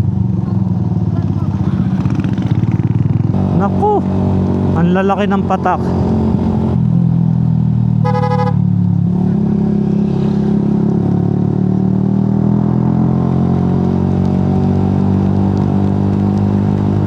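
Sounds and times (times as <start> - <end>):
scooter engine running: 0.2 - 4.2.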